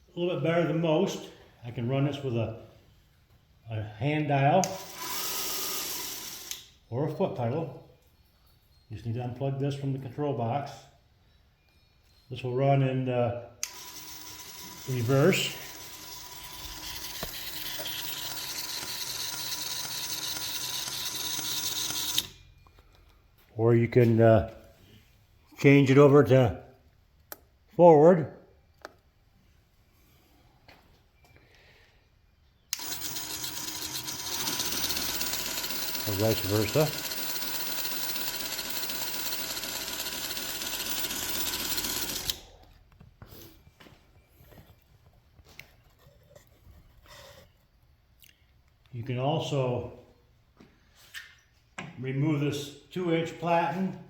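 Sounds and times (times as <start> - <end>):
belt grinder whining: 4.6 - 6.7, 13.6 - 22.4, 32.7 - 42.6
faint motor hum: 32.7 - 42.7.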